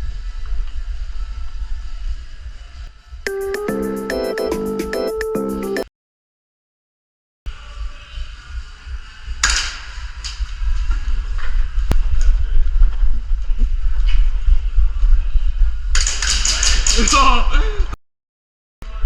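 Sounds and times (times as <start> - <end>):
wind rumble on microphone: 0.0 - 2.9, 7.5 - 17.9.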